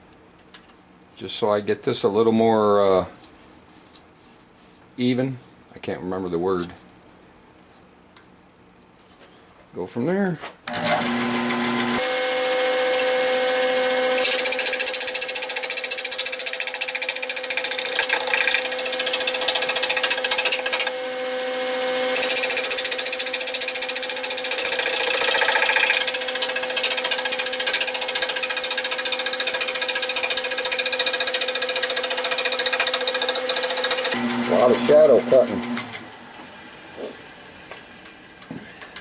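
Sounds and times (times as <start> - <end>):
lathe humming: 11.0 - 37.8
lathe tool chattering on wood: 12.0 - 34.2.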